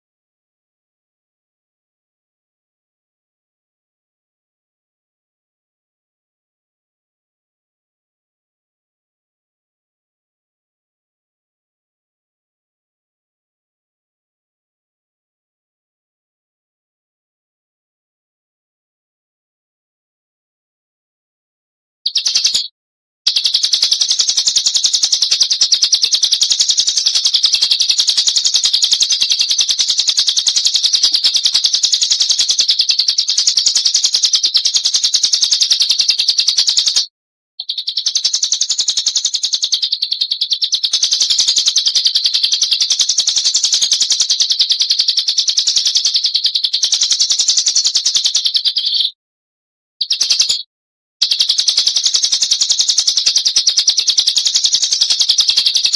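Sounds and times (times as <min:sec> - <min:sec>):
bird giving high trill: 0:22.1 - 0:22.7, 0:23.3 - 0:36.9.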